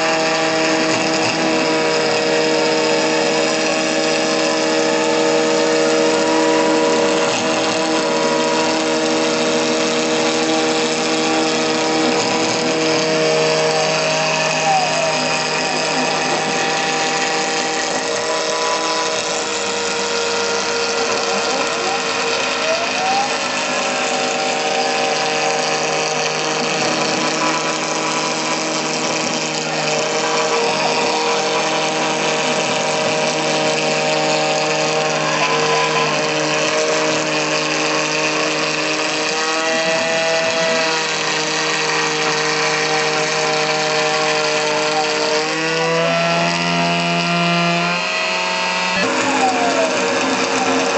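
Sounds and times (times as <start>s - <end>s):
cnc router spindle whining: 0.0s - 50.9s
machine axes tones sliding: 0.0s - 50.9s.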